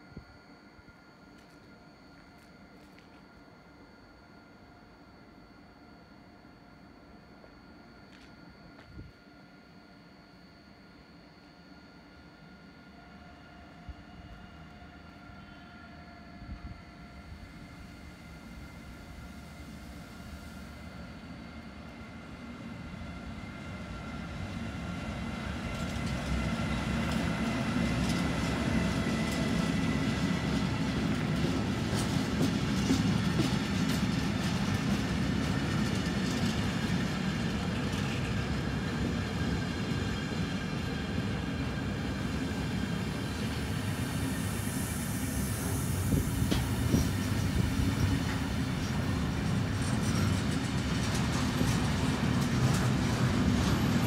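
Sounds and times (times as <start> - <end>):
freight train rumbling past: 13.1 - 54.0.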